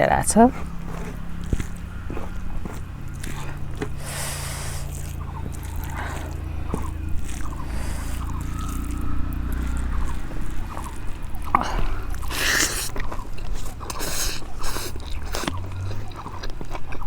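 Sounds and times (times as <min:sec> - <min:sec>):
low background hum: 0:00.0 - 0:17.0
mouth clicks: 0:00.0 - 0:17.0
wet chewing: 0:00.0 - 0:17.0.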